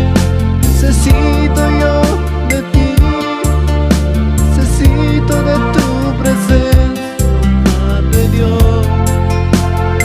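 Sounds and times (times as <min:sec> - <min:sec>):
drum-kit beat: 0:00.0 - 0:03.4
electronic keyboard instrumental: 0:00.0 - 0:10.0.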